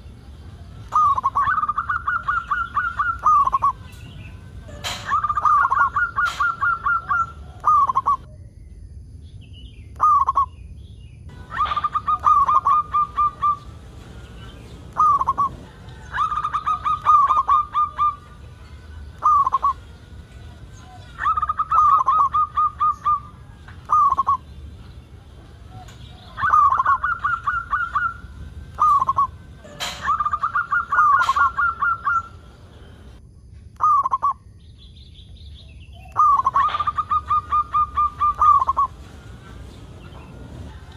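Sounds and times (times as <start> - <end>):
dove cooing: 0.9 - 4.0, 4.6 - 8.3, 11.3 - 24.6, 25.2 - 33.1, 36.1 - 40.9.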